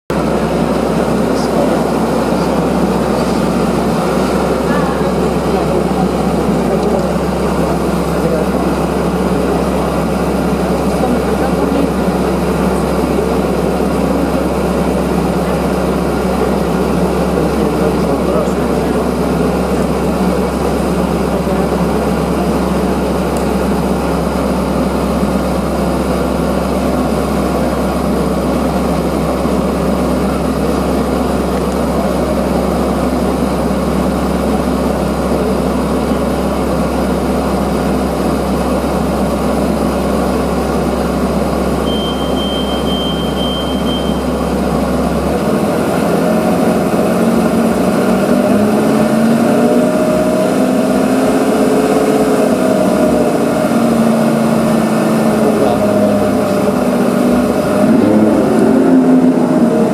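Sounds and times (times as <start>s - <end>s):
car engine idling and revving: 0.1s - 59.9s.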